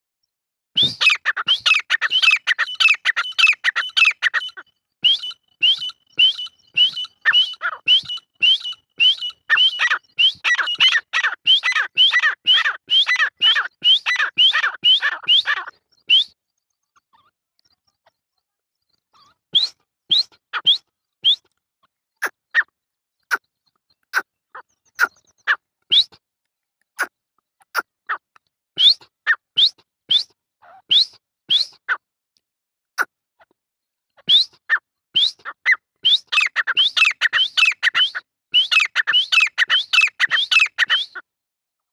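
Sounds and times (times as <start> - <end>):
francolin calling: 0.8 - 16.3, 35.2 - 41.2.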